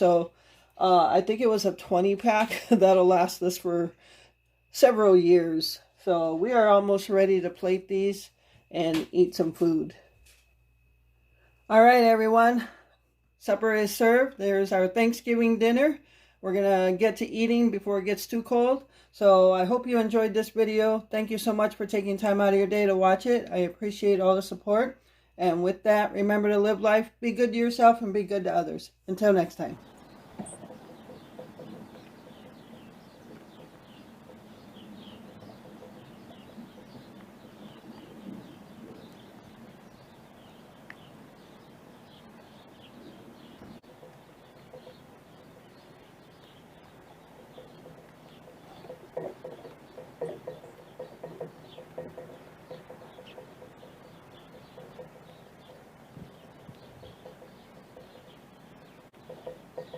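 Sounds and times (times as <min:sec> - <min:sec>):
small birds chirping: 0:12.8 - 0:59.9.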